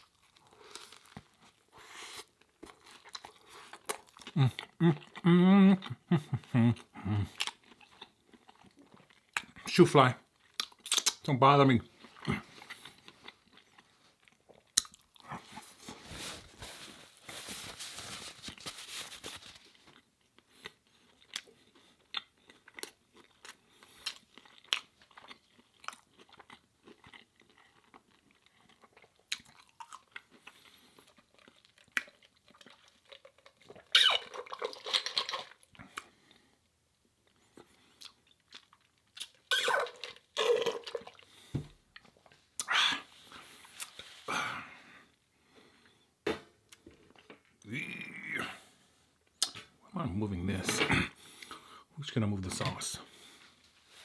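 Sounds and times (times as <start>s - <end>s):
wet mouth clicks: 10.6s - 11.3s, 42.6s - 43.1s, 49.4s - 49.7s
crunchy chewing: 12.0s - 36.4s.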